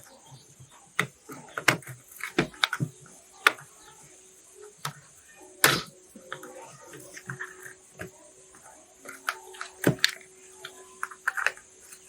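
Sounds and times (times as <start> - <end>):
hard objects clicking and knocking: 0.6 - 3.8, 5.6 - 12.0.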